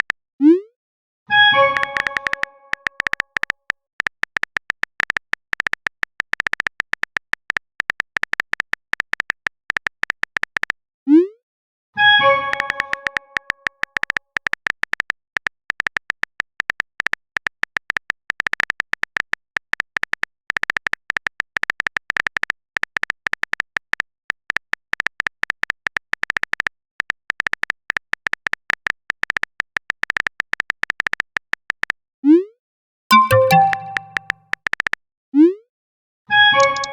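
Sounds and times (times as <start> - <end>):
phone keyboard typing clicks: 1.7 - 10.7, 33.1 - 34.4
ringing message chime: 33.1 - 34.3.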